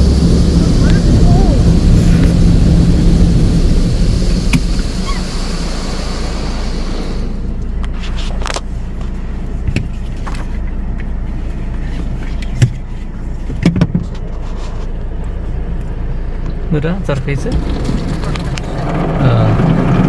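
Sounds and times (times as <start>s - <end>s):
water jets spraying a car: 0.0s - 7.6s, 17.0s - 20.0s
low hum from car: 0.0s - 20.0s.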